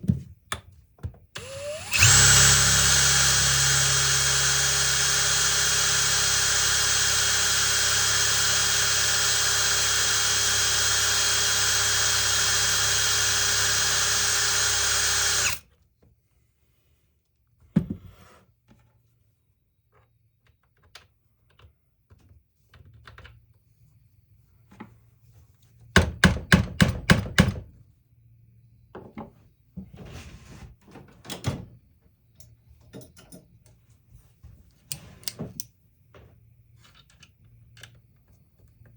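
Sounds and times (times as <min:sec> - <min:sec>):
electric drill running: 0:01.4 - 0:15.6.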